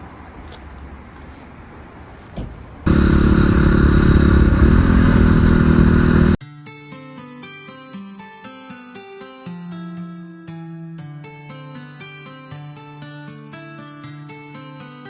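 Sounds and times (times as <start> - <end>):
motorcycle engine running: 2.8 - 6.4.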